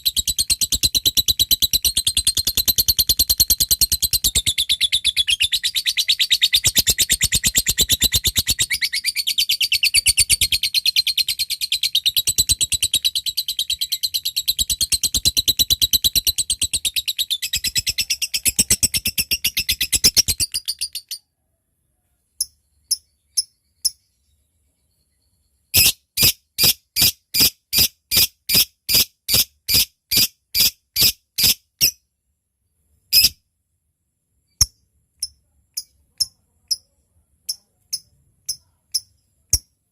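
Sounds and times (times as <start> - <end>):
bird chattering trill: 0.0 - 21.2, 25.8 - 31.6
sharp bird chirps: 0.0 - 21.3, 22.4 - 32.0, 33.0 - 33.4.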